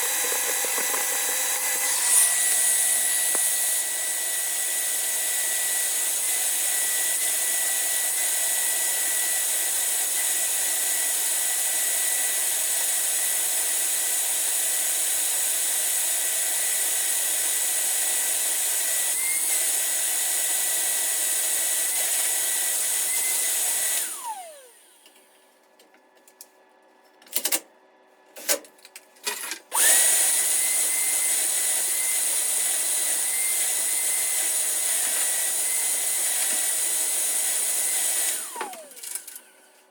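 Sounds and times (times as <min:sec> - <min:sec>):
electric motor whining: 0:00.0 - 0:07.2, 0:29.8 - 0:39.0.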